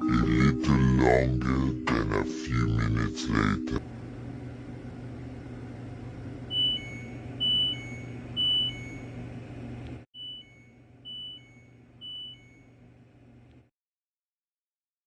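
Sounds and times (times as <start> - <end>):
low machine hum: 0.0 - 13.7
dishwasher two-note beeps: 6.5 - 9.2, 10.2 - 12.8.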